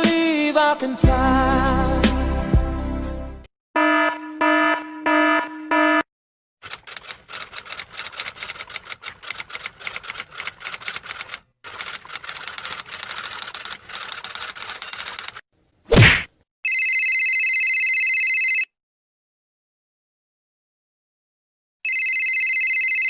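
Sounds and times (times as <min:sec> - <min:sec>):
fast uneven clicks: 0:06.6 - 0:15.4.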